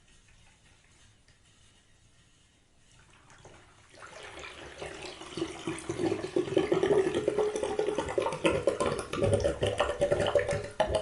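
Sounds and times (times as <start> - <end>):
bathwater gurgling down plughole: 3.1 - 11.0.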